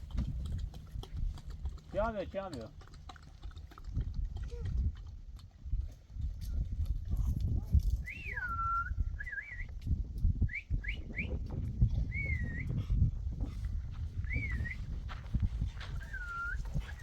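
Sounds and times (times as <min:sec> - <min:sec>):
person whistling gliding calls: 0:08.0 - 0:09.8, 0:10.4 - 0:11.4, 0:12.0 - 0:12.8, 0:14.2 - 0:14.8, 0:16.0 - 0:16.7.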